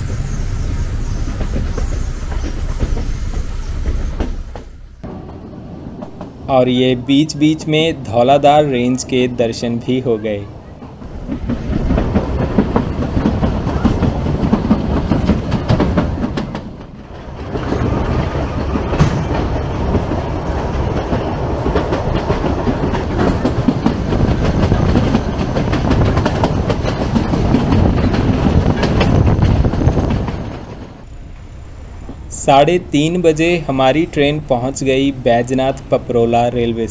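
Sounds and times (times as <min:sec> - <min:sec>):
train rumbling: 0:00.0 - 0:36.9
wheels clattering over rail joints: 0:10.8 - 0:31.1.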